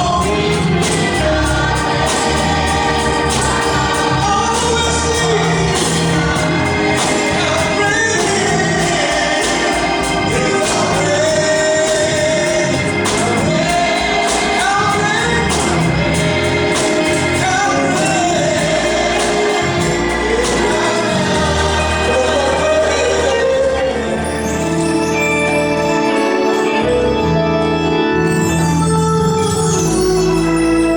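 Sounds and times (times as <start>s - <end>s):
choir singing gospel music: 0.0s - 30.9s.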